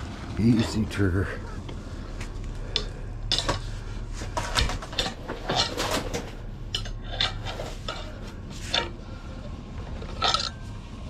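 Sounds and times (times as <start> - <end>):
metal scrap clanking: 2.7 - 9.3, 9.9 - 10.8.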